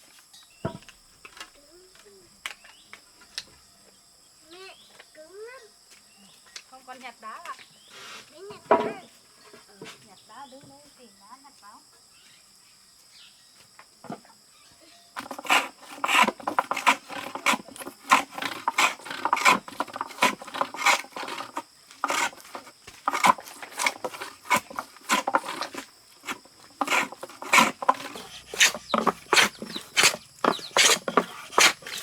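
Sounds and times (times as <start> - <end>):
insects trilling: 0.0 - 32.0
rasping scrapes: 15.2 - 32.0.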